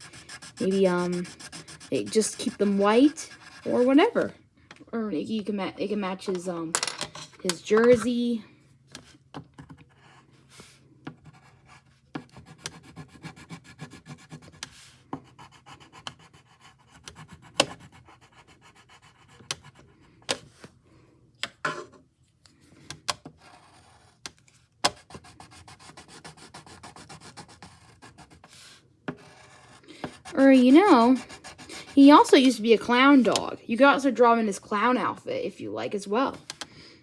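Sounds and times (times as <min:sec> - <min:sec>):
pen scratching on paper: 0:00.0 - 0:04.3, 0:11.2 - 0:19.8, 0:25.0 - 0:33.0.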